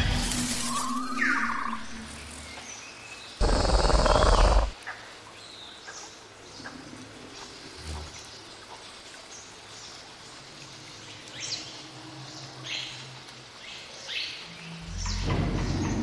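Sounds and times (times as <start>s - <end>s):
birds chirping: 3.2s - 4.8s.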